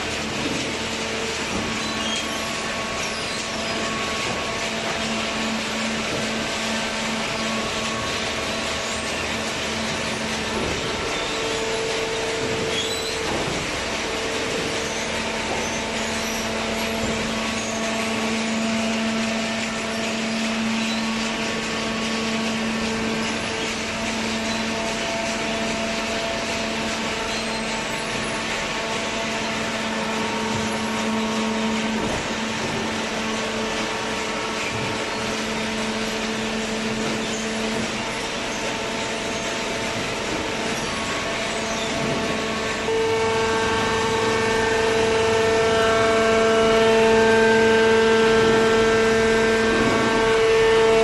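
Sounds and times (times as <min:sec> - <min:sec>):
baler machine humming: 0:00.0 - 0:51.0.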